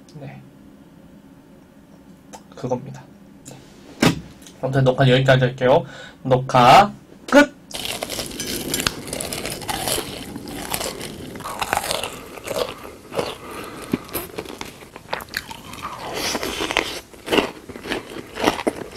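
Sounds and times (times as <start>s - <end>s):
crunchy biting and chewing: 7.7s - 18.9s.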